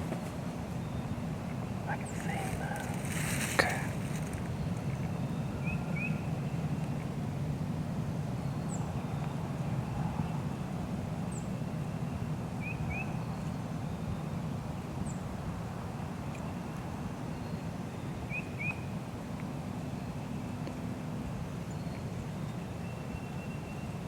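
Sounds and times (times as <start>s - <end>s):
small birds chirping: 0.7s - 7.0s
steady low rumble: 1.3s - 7.4s.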